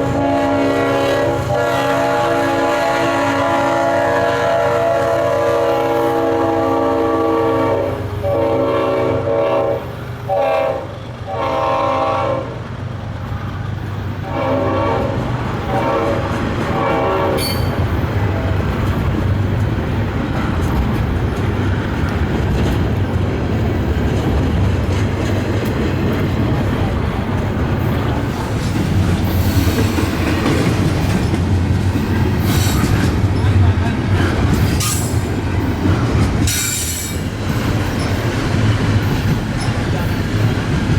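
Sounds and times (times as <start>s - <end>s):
locomotive air horn blasts: 0.0s - 12.6s, 14.2s - 17.8s
freight train rumbling past: 0.0s - 40.9s.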